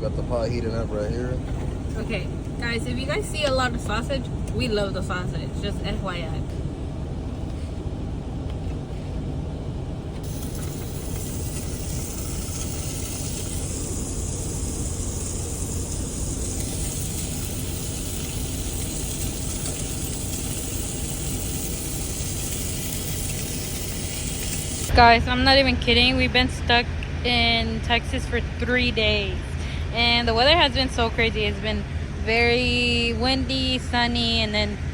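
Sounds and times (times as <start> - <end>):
steady low rumble: 0.0 - 34.9
sausages sizzling in a pot: 10.2 - 24.9.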